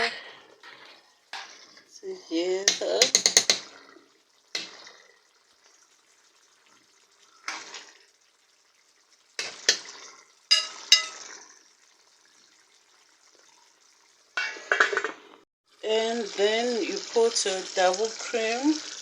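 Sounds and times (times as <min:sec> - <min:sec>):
spoon scraping a pot: 0:10.5 - 0:11.4.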